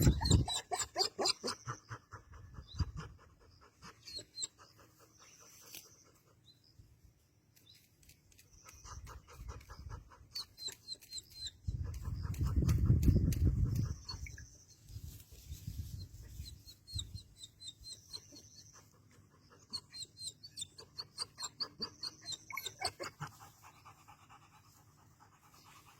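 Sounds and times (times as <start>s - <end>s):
dog panting rapidly: 0.0s - 6.4s, 21.6s - 25.9s.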